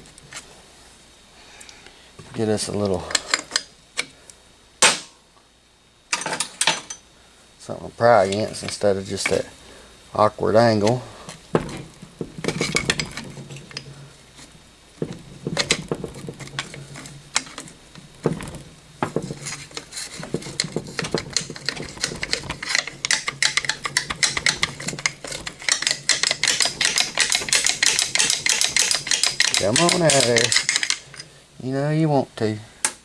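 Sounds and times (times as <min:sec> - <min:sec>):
metal tools clinking and scraping: 0:06.1 - 0:07.0, 0:10.5 - 0:31.3.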